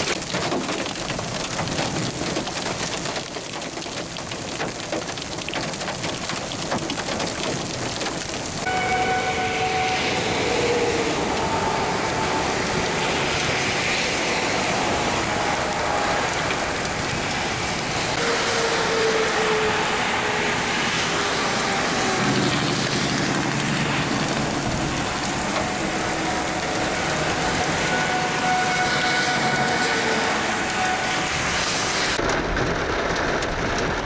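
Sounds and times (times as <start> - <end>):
heavy rain pouring: 0.0 - 34.0
warning siren wailing: 8.6 - 32.2.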